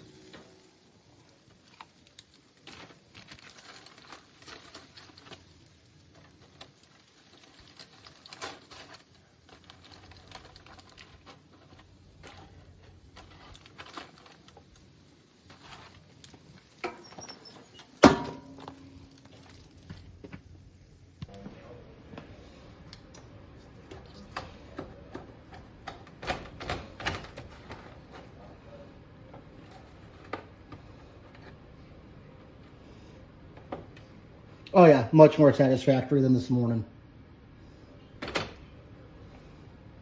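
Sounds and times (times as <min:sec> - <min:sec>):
metal utensils clattering on grill: 0:16.8 - 0:19.2
loud ringing metallic clank: 0:18.0 - 0:19.0.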